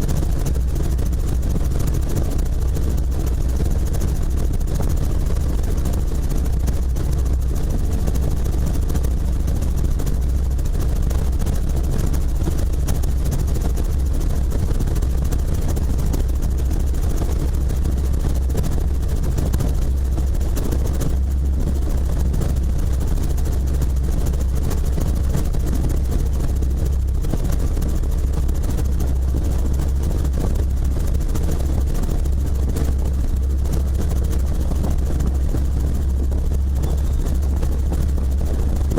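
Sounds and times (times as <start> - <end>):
helicopter rotor and engine: 0.0 - 38.9.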